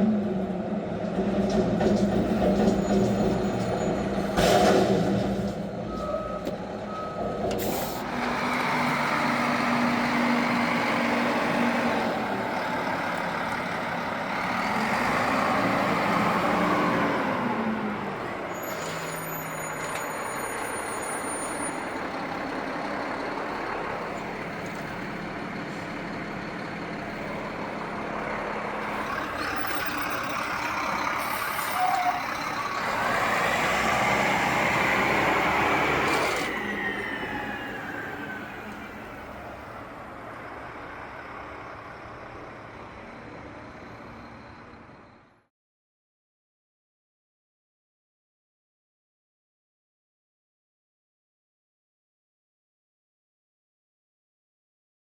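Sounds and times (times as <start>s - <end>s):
garbage truck diesel engine: 0.0s - 45.5s
air brakes hissing: 7.6s - 8.1s.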